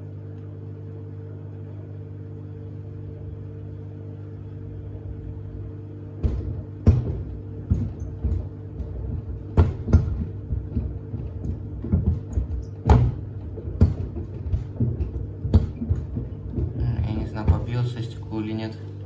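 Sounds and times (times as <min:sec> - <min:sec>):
washing machine motor hum: 0:00.0 - 0:19.0
sneakers knocking in washer drum: 0:04.8 - 0:18.7.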